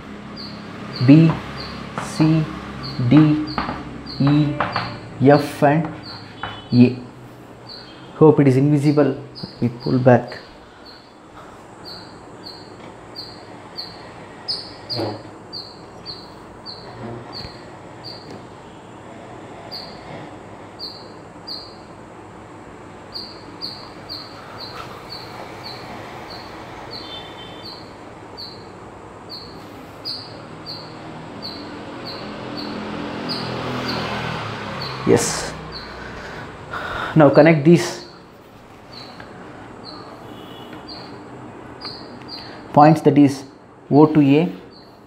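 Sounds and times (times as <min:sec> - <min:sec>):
bird chirping: 0:00.0 - 0:19.0, 0:19.6 - 0:22.1, 0:22.9 - 0:45.0
chalk knocking on blackboard: 0:05.9 - 0:06.7.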